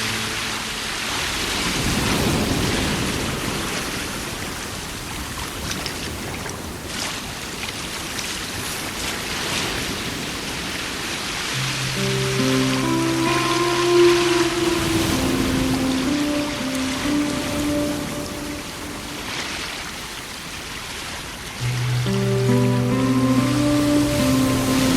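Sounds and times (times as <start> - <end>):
rain hiss: 11.5 - 20.7.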